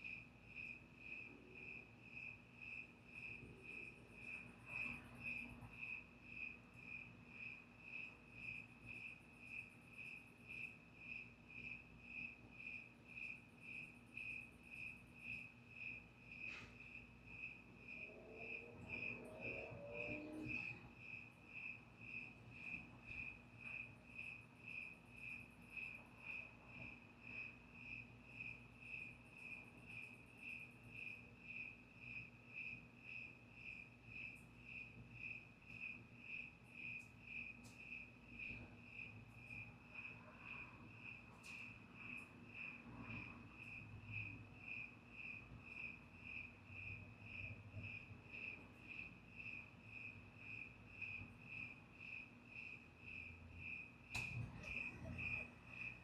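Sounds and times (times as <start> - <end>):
cricket chirping: 0.0 - 56.0
faint low hum: 0.0 - 56.0.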